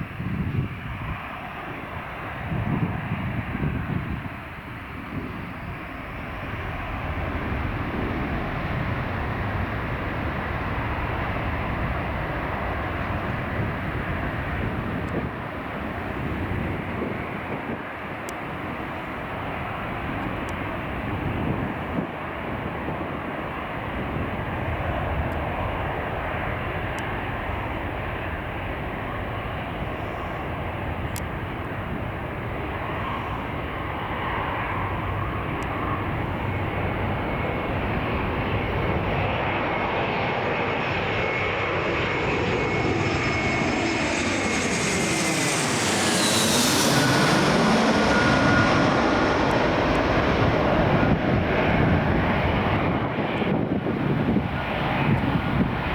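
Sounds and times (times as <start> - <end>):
airliner engines passing: 0.0 - 55.9
high engine whine: 28.6 - 55.9.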